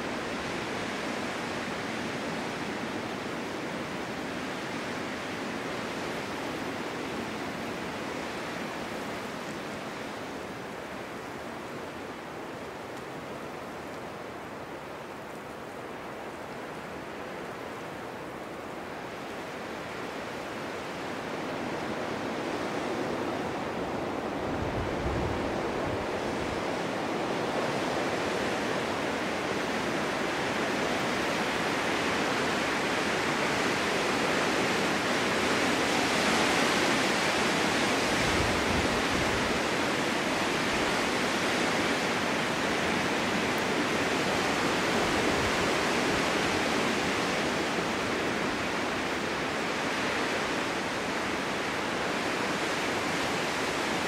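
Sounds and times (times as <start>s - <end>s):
wind blowing through forest: 0.0s - 54.0s
wind gust buffeting microphone: 21.9s - 30.6s.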